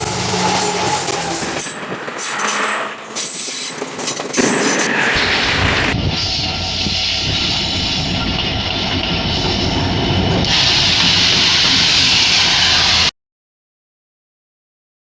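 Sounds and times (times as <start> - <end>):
train rumbling and rattling: 0.0 - 13.1.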